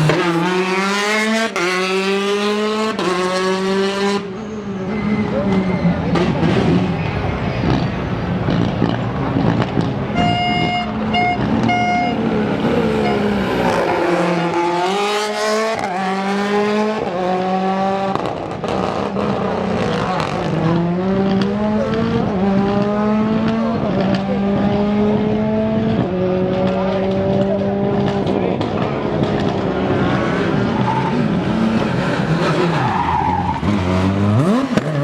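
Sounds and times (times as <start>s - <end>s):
rally car engine accelerating: 0.0s - 35.0s
steady horn-like tone: 10.2s - 12.3s.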